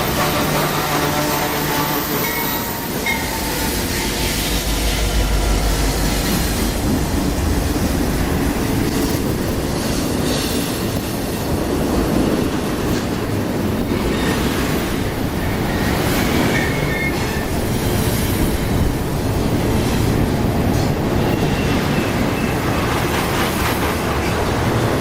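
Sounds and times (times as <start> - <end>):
freight train rumbling past: 0.0 - 25.0.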